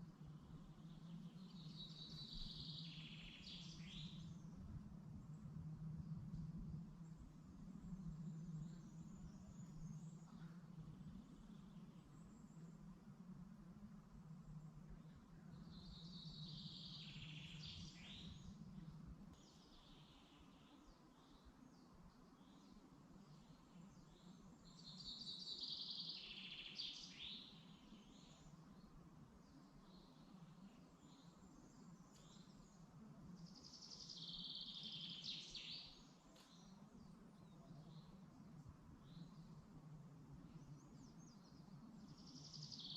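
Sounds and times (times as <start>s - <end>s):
steady low hum: 0.0s - 24.8s
songbirds singing: 0.0s - 42.9s.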